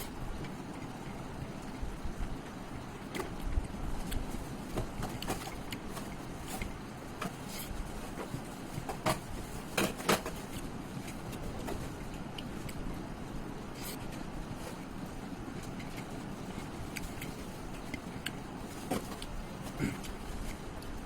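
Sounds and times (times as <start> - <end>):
low background rumble: 0.0 - 21.0
person chewing and smacking: 3.2 - 7.8, 15.5 - 18.6.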